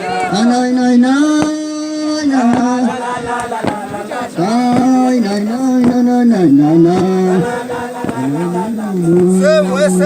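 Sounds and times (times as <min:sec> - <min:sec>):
voices singing long notes: 0:00.0 - 0:10.0
sharp percussive beats: 0:02.4 - 0:10.0.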